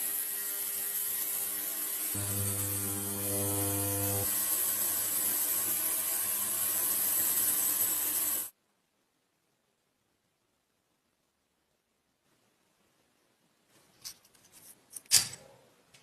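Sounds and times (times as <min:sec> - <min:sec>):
dynamo light gears whirring: 0:02.1 - 0:08.5
steady hum: 0:02.2 - 0:04.3.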